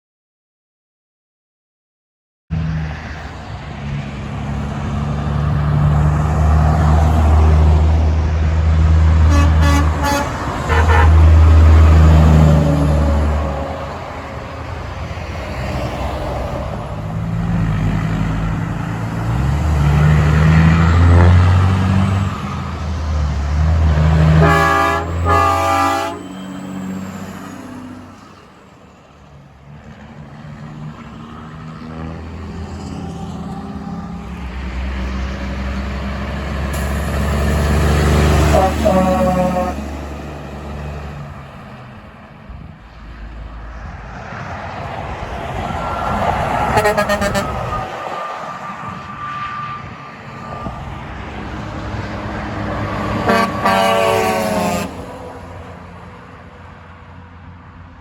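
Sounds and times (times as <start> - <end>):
heavy trucks driving past: 2.5 - 58.0
truck air horns: 9.2 - 14.4, 24.0 - 28.2, 36.7 - 40.2, 45.8 - 50.9, 52.8 - 55.3.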